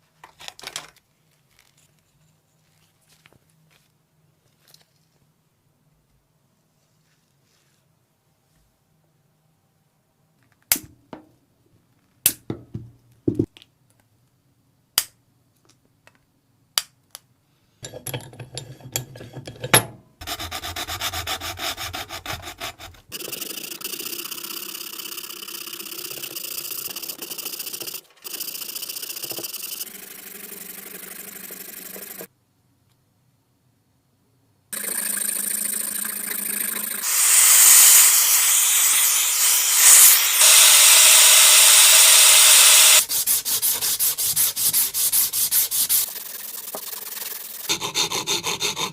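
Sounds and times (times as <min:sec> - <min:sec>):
abrasive sanding: 0:37.0 - 0:48.9.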